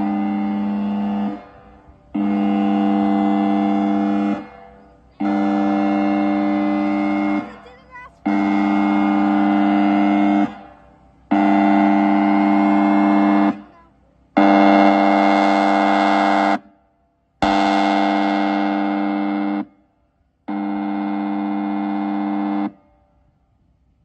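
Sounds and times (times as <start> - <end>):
warning siren blasts: 0.0 - 16.8, 17.4 - 23.2.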